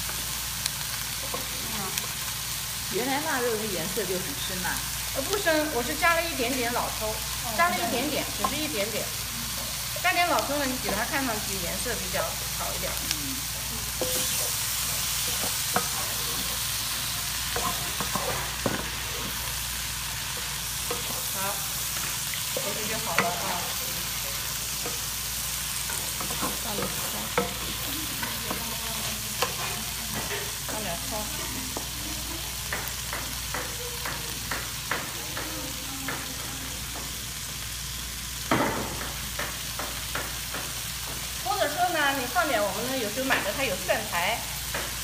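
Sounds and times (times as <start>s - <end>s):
stir-fry sizzling: 0.0s - 45.0s
spatula knocking against pan: 32.7s - 37.2s.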